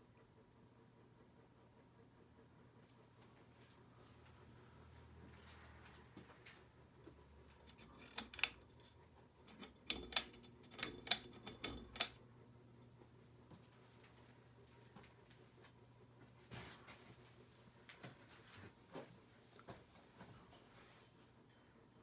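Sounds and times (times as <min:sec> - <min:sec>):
sharp clicks and light knocks: 0:07.6 - 0:12.2.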